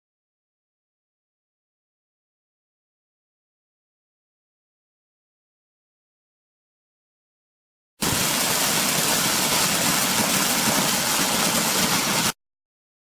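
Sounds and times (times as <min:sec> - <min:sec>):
machine noise with strong hiss: 0:08.0 - 0:12.4.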